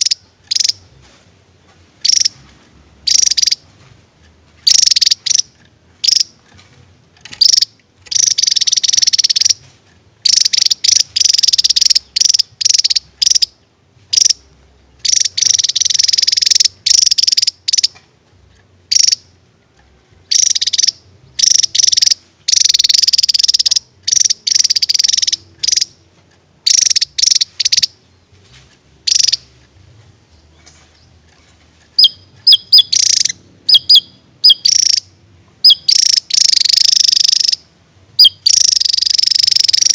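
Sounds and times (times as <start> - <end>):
bird trilling: 0.0 - 1.0, 2.0 - 3.8, 4.6 - 18.0, 18.9 - 19.4, 20.2 - 26.0, 26.6 - 28.2, 29.0 - 29.7, 30.3 - 39.9
bird whistled notes: 32.0 - 37.6, 38.2 - 39.9.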